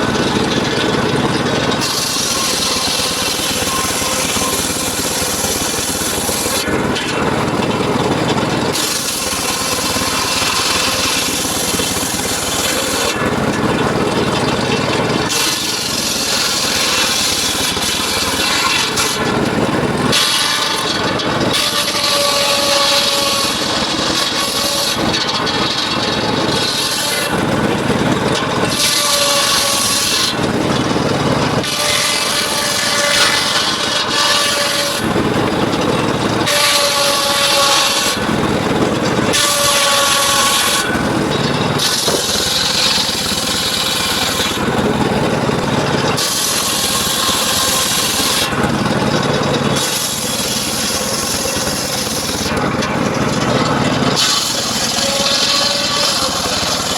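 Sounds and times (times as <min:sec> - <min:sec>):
circular saw blade cutting wood: 0:00.0 - 0:56.9
saw blade ringing tone: 0:01.7 - 0:07.6.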